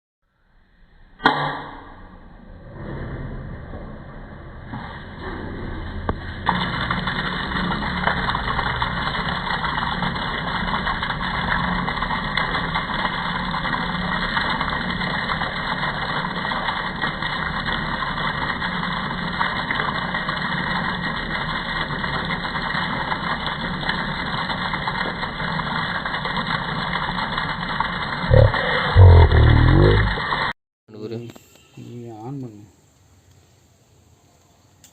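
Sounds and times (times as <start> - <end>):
electric water pump humming: 4.1 - 30.5.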